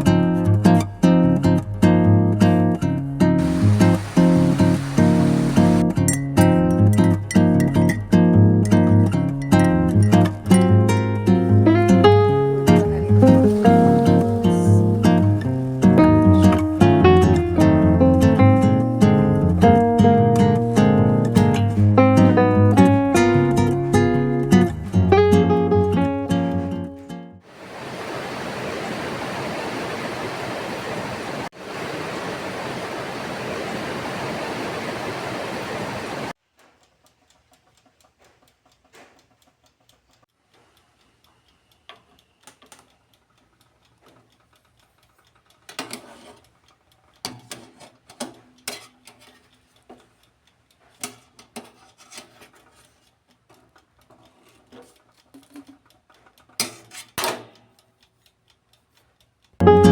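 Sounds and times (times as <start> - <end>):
heavy rain hiss: 3.4 - 5.8, 11.2 - 19.8, 27.4 - 36.4.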